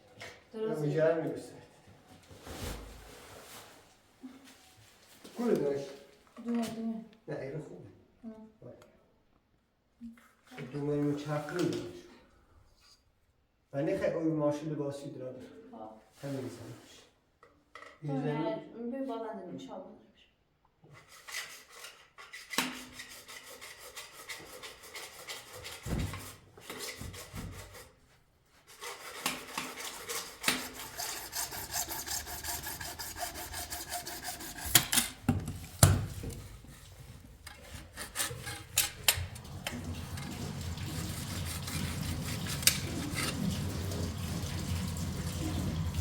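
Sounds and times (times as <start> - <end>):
scraping and rubbing: 21.0 - 44.4.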